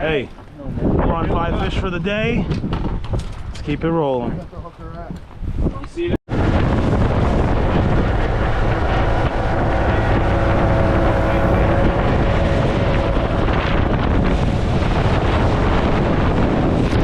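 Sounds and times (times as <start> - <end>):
loud wind on microphone: 0.0 - 17.0
boat engine hum: 6.3 - 17.0.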